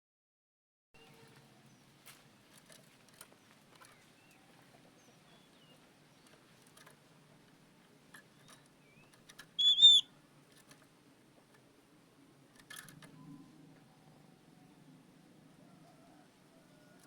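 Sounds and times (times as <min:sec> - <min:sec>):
harsh bird chirp: 0:08.4 - 0:10.1
bird whistled note: 0:09.6 - 0:10.1.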